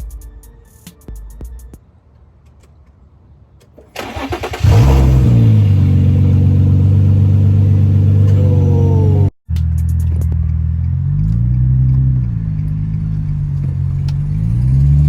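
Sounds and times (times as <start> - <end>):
car engine starting and idling: 3.6 - 15.0.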